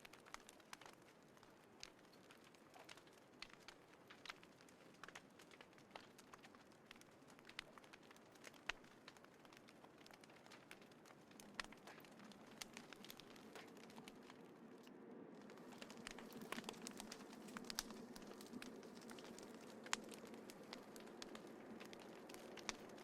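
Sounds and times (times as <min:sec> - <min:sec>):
campfire crackling: 0:00.0 - 0:23.0
fire snaps and pops: 0:00.0 - 0:23.0
low fire hiss: 0:00.0 - 0:23.0.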